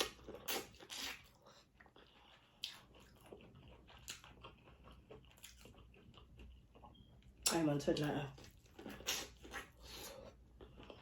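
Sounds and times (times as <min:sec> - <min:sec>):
chewing and wet mouth noises: 0:00.0 - 0:11.0.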